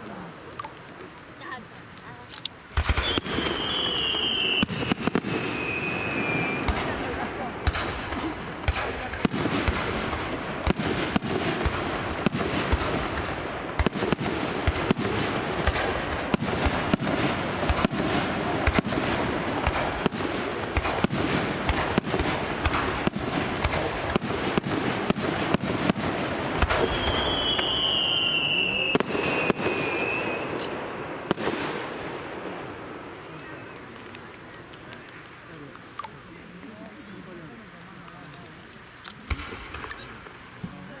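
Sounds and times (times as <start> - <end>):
fireworks bursting and crackling: 0.0 - 41.0
firework whistle: 2.8 - 10.0, 20.8 - 31.4.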